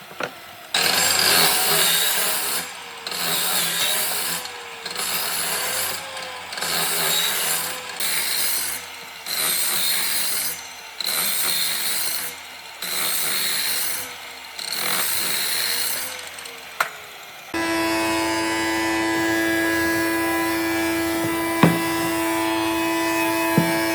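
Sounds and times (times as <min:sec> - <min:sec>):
woodworking tool rasping wood: 0:17.6 - 0:23.9.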